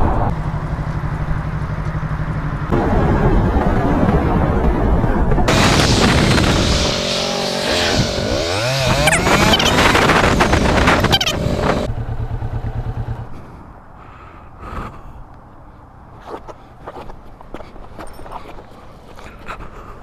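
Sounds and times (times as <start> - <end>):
motorcycle engine: 0.3 - 3.5, 5.5 - 13.4
wind rush: 2.7 - 12.0.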